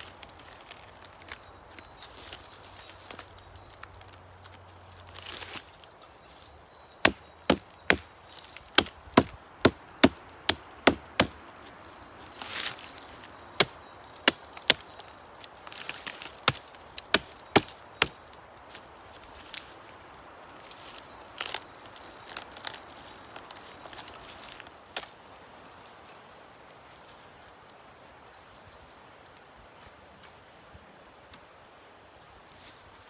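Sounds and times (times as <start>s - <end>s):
blade chopping wood: 7.0s - 8.1s, 8.7s - 11.4s, 16.1s - 18.2s.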